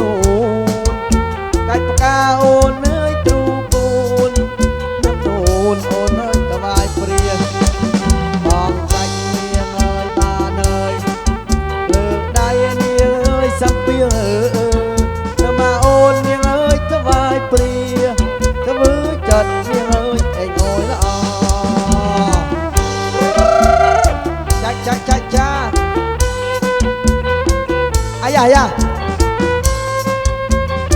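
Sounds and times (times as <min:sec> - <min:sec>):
band playing instrumental: 0:00.0 - 0:30.9
driving drum beat: 0:00.0 - 0:30.9.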